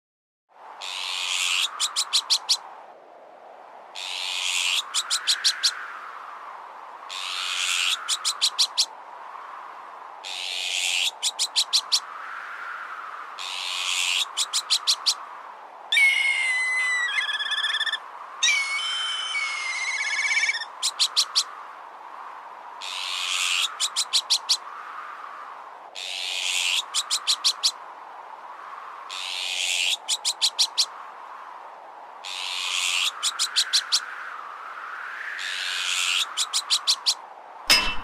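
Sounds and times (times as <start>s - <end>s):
strong wind: 0.5s - 38.0s
kite whistling trill calls: 15.9s - 21.4s
magpie rasping alarm calls: 16.0s - 20.7s.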